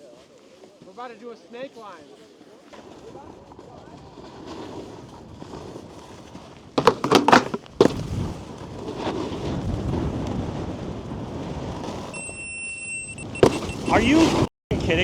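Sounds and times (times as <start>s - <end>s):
snowboard sliding on snow: 0.0s - 12.6s, 13.2s - 15.0s
board knocking and scraping: 6.8s - 8.3s.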